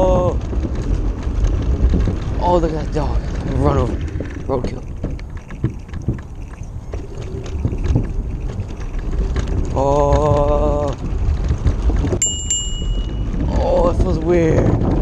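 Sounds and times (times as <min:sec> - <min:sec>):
wind buffeting microphone: 0:00.0 - 0:15.0
metallic dings: 0:12.2 - 0:13.4.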